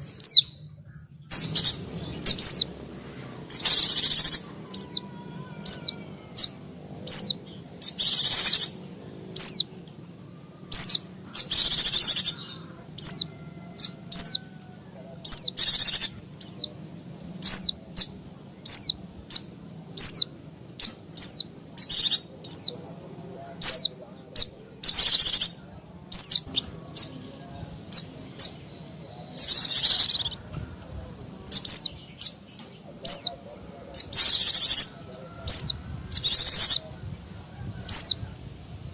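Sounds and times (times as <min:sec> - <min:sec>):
rapid high bird chatter: 0:00.0 - 0:38.9
white-eye bird calling: 0:01.3 - 0:02.7, 0:03.5 - 0:09.7, 0:10.6 - 0:14.4, 0:15.2 - 0:16.7, 0:17.4 - 0:22.7, 0:23.6 - 0:27.2, 0:27.8 - 0:30.4, 0:31.5 - 0:36.8.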